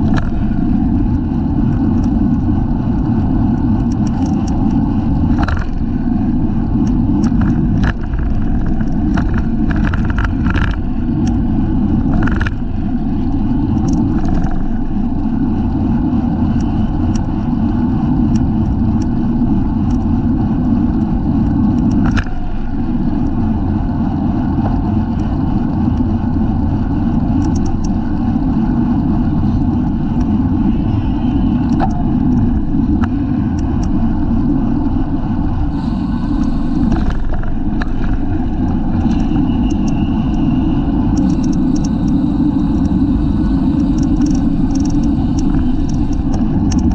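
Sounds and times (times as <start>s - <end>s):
clicks and rattles: 0.0s - 2.5s, 3.8s - 6.0s, 6.7s - 11.4s, 12.0s - 12.8s, 13.6s - 14.8s, 41.2s - 46.9s
tyre road noise: 0.0s - 46.9s
wind rushing over microphone: 0.0s - 46.9s.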